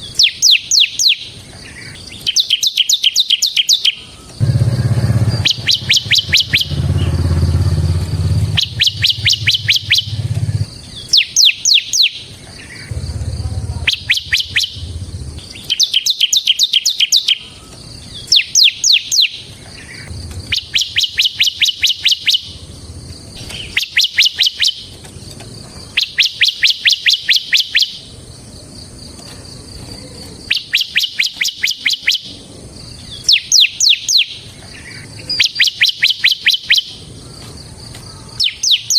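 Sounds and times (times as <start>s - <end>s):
bird song with high chirps: 0.0s - 38.9s
low hum: 4.4s - 10.7s, 12.9s - 15.7s, 19.7s - 23.8s.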